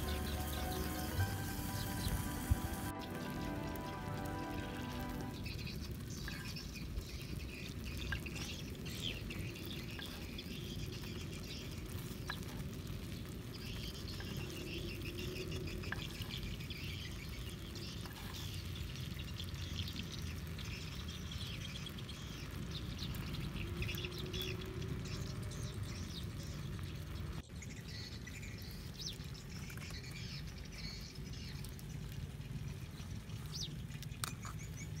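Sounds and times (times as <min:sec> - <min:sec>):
low outdoor rumble: 0:00.0 - 0:21.0
small birds chirping: 0:00.0 - 0:35.0.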